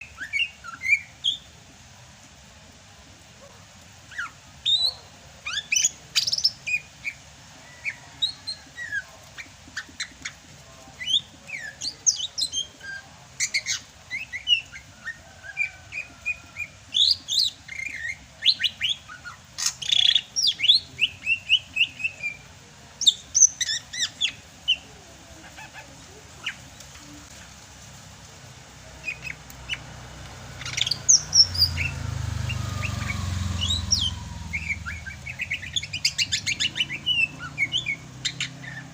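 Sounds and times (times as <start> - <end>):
bird singing whistles and chirps: 0.0 - 1.5, 4.1 - 7.2, 30.6 - 38.9.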